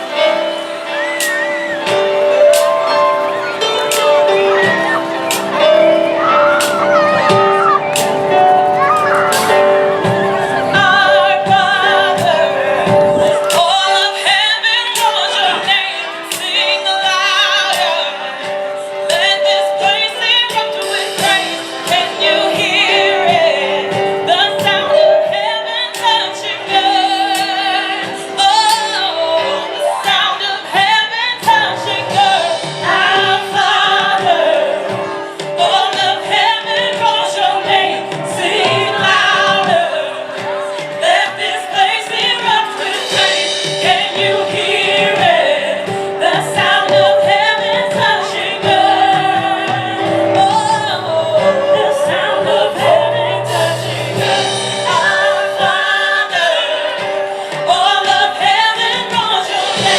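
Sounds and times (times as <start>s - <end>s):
drum kit: 0.0s - 59.9s
piano chords: 0.0s - 59.9s
women singing with vibrato: 9.4s - 59.9s.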